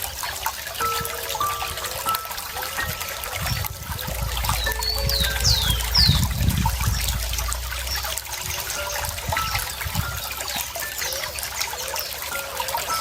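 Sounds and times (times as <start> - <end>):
water trickling: 0.0 - 13.0
low rumble: 3.7 - 8.6
faint bird chirps: 4.3 - 6.3.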